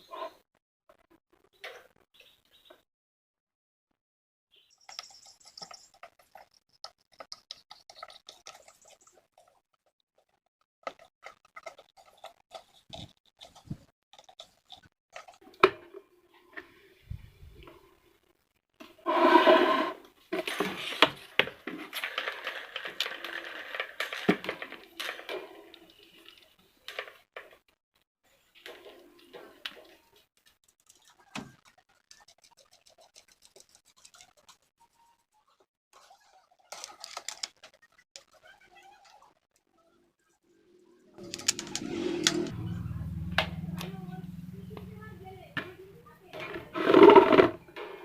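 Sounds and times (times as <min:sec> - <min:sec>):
small hard parts clicking: 0:36.7 - 0:38.3
fan motor humming: 0:41.2 - 0:46.0.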